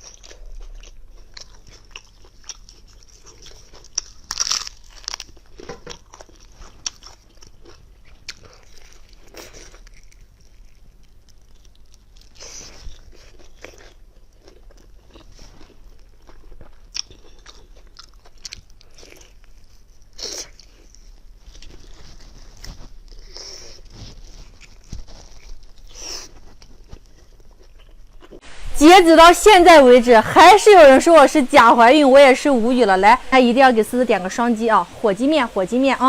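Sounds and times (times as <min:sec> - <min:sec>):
person chewing crunchy peppers: 0:00.0 - 0:28.4.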